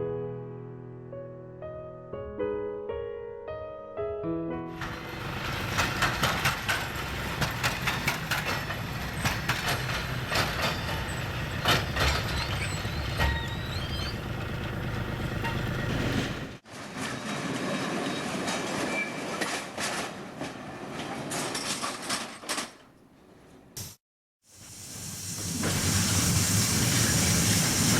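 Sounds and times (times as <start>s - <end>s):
freight wagons rolling: 4.8s - 22.9s.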